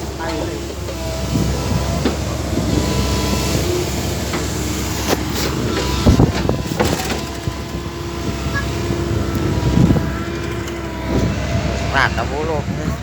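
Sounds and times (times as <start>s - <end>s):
vehicle engine running: 0.0s - 13.0s
knocks and rattles: 5.2s - 11.0s.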